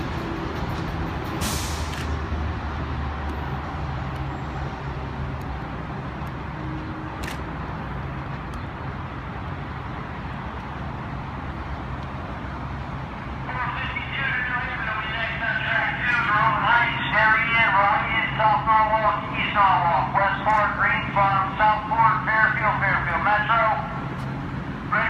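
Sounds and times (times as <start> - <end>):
electric train rumble and hum: 0.0 - 7.2
short hiss: 1.4 - 2.2.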